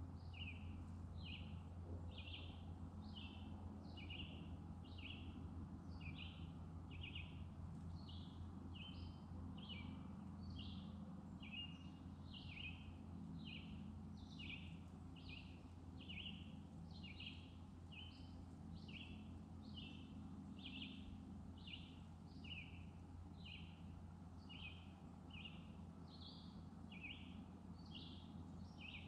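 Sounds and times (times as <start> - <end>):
faint low hum: 0.0 - 29.0
bird chirping: 0.2 - 5.2, 11.4 - 23.8, 24.4 - 29.0.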